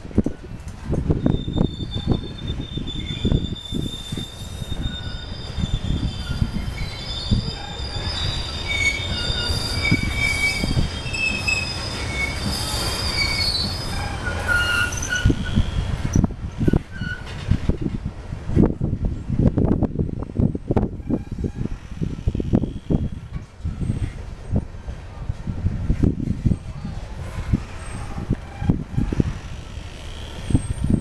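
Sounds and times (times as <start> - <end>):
train cars rumbling past: 0.0 - 31.0
high-pitched wheel squeal: 1.1 - 17.4, 27.8 - 31.0.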